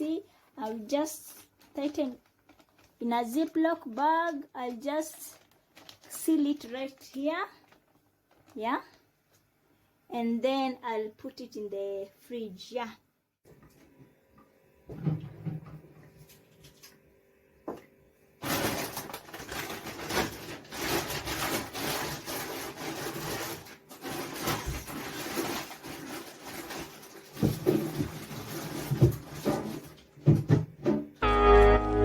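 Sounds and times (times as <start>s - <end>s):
plastic bags rustling: 0.0s - 9.4s, 18.4s - 30.5s.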